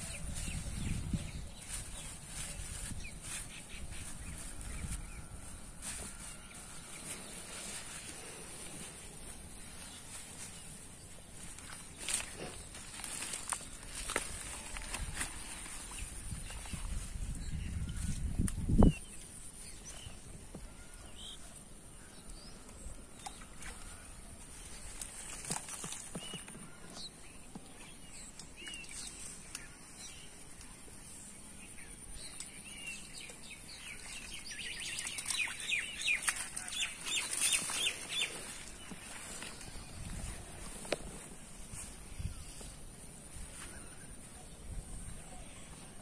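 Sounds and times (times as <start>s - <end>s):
birds calling: 31.9s - 46.0s.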